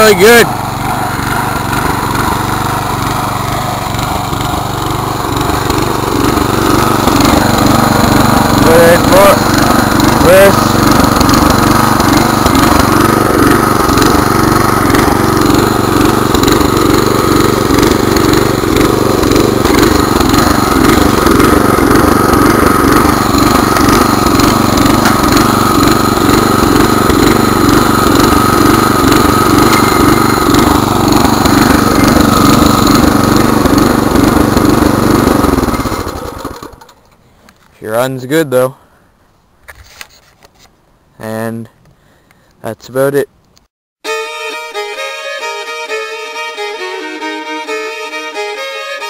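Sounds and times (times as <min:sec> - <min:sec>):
tiller engine running: 0:00.0 - 0:37.2, 0:44.1 - 0:49.0.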